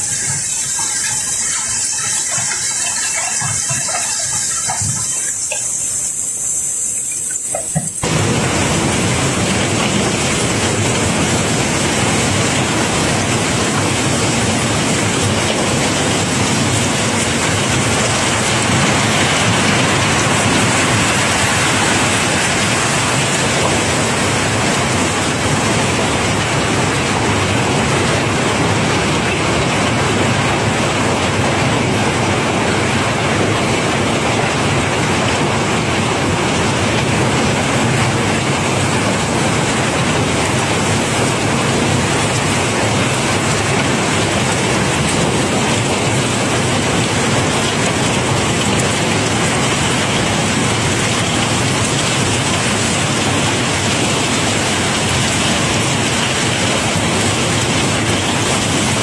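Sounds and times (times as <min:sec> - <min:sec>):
cobblestones pouring clatter: 0:00.0 - 0:08.2.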